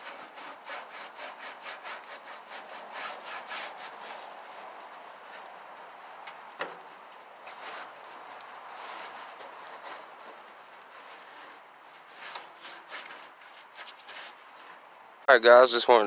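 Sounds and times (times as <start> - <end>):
scrubbing grill surface: 0.0 - 15.0.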